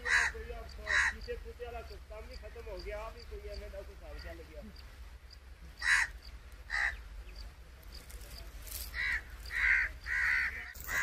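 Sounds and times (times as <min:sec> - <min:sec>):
harsh bird cries: 0:00.0 - 0:01.4, 0:05.8 - 0:07.4, 0:08.9 - 0:11.0.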